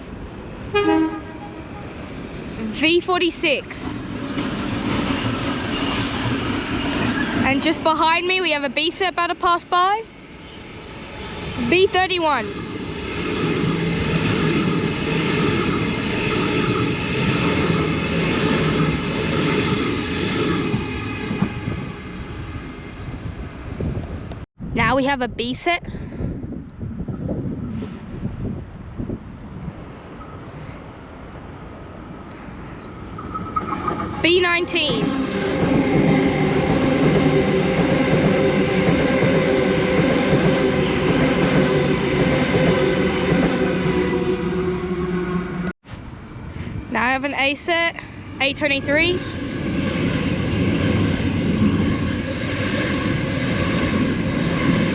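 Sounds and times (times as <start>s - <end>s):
electric train passing: 0.0s - 24.4s, 27.1s - 54.9s
train motor hum: 33.0s - 45.7s.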